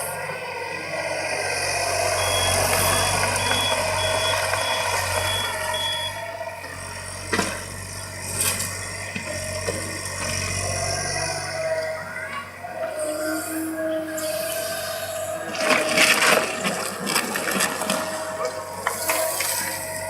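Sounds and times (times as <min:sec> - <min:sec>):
excavator diesel engine humming: 0:00.0 - 0:20.0
travel alarm beeping: 0:02.0 - 0:06.3.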